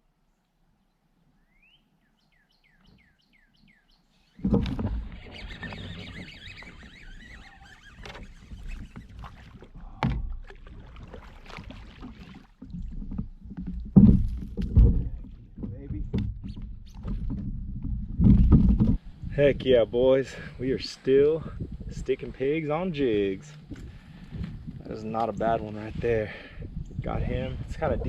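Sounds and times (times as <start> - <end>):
bird chirps: 0.8 - 4.5, 5.1 - 9.1
kayak moving on water: 4.2 - 28.0.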